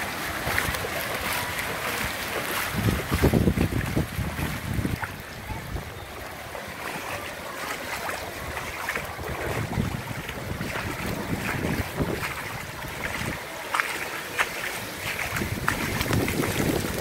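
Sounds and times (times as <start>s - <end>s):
floodwater running: 0.0s - 17.0s
heavy rain: 0.0s - 17.0s
wind gusts buffeting microphone: 1.9s - 6.5s, 8.4s - 13.6s, 14.6s - 17.0s.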